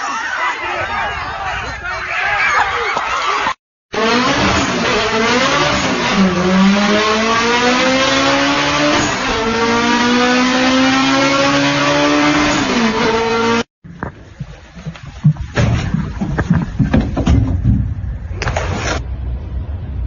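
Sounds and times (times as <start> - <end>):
car engine accelerating through gears: 4.0 - 13.7.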